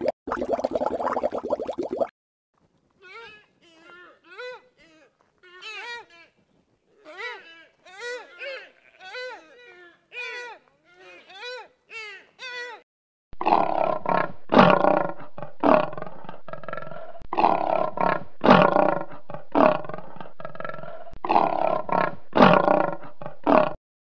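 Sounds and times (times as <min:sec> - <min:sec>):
lion roaring and grunting: 0:13.4 - 0:23.8.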